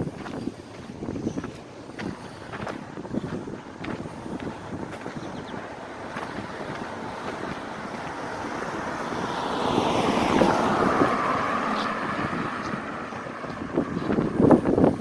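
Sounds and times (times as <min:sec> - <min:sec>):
wind buffeting microphone: 0:00.0 - 0:15.0
vehicle passing: 0:03.8 - 0:15.0.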